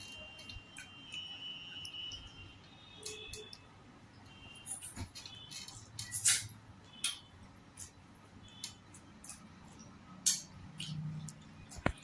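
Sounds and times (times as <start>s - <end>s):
wet chewing and lip smacks: 7.8s - 12.0s.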